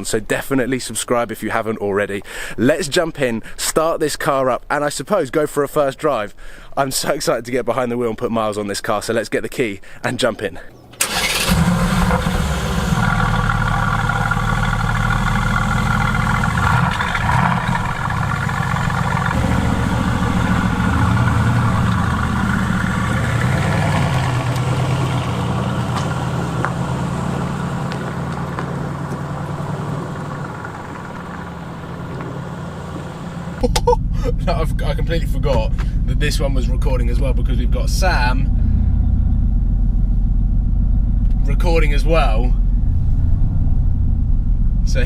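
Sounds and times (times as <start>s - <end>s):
car engine idling: 10.7s - 45.0s.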